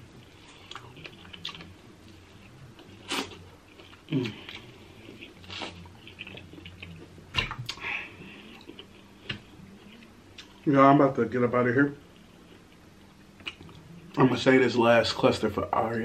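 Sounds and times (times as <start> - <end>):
chewing crab shell: 0.2 - 7.8.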